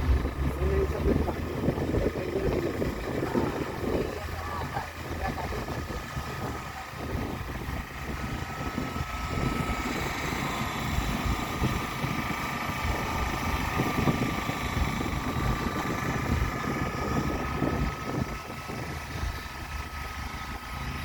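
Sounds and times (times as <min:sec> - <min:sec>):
vehicle engine rumble: 0:00.0 - 0:21.0
wind buffeting microphone: 0:00.0 - 0:21.0.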